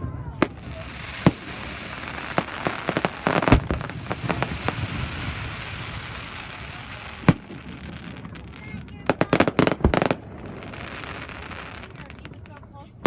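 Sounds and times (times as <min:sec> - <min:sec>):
firework bangs and crackles: 0:00.0 - 0:13.0.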